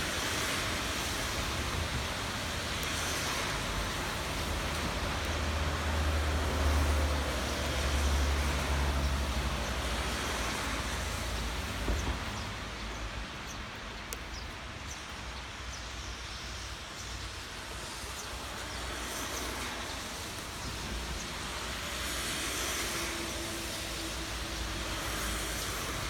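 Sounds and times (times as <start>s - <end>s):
passing traffic rumble: 0.0s - 14.2s, 17.6s - 26.0s
steady rain: 0.0s - 26.0s.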